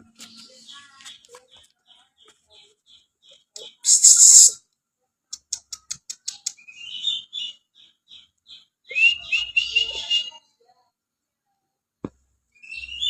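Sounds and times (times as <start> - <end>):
bird singing: 5.6 - 10.4, 12.5 - 13.0.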